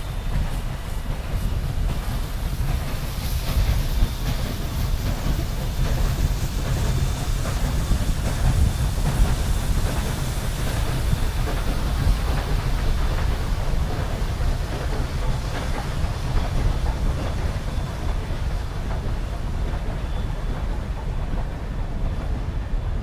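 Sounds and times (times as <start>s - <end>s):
train rumbling on rails: 0.0s - 23.0s.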